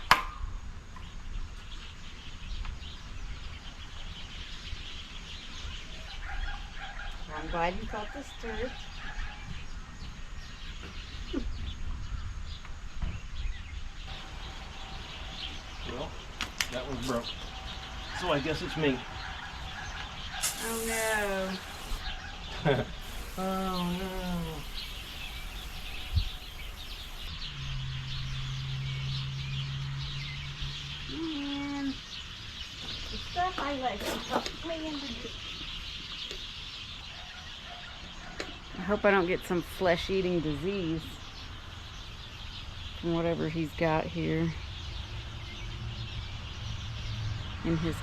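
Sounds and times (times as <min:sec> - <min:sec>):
small birds chirping: 0:01.0 - 0:48.0
steady low hum: 0:22.9 - 0:27.3.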